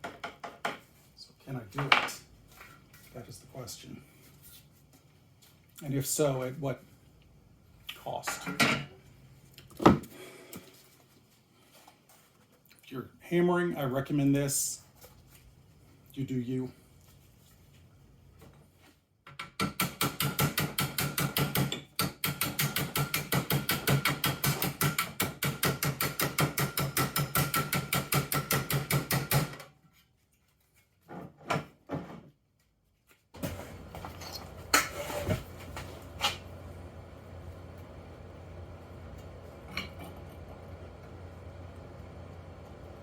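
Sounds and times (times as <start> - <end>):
steady low hum: 33.4 - 43.0.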